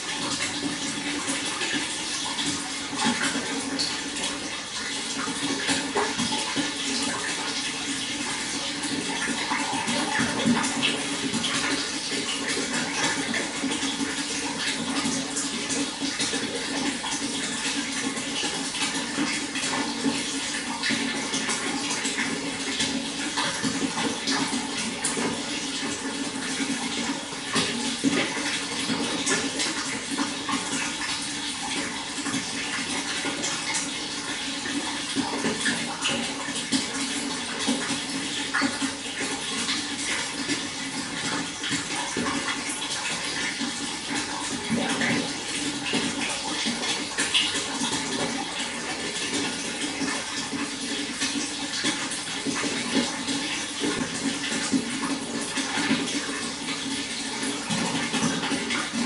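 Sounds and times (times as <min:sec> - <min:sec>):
running water with splashes: 0:00.0 - 0:59.0.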